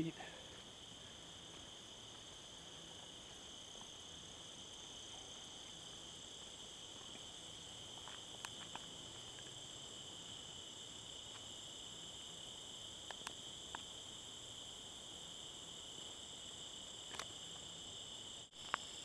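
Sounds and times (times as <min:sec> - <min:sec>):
insects chirping: 0:00.0 - 0:19.0
small clicks: 0:13.0 - 0:13.9, 0:17.1 - 0:17.3.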